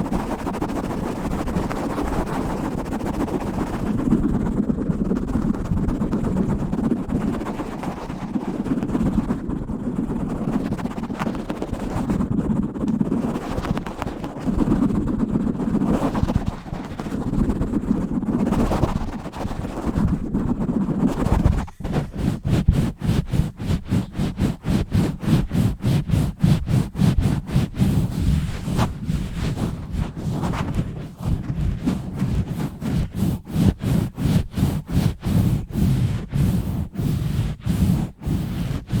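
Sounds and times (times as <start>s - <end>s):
scratching on a microphone: 0.0s - 39.0s.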